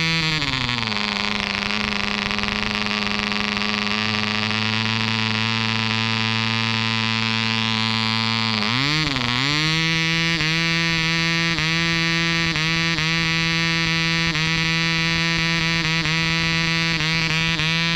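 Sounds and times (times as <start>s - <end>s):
model engine running: 0.0s - 17.9s.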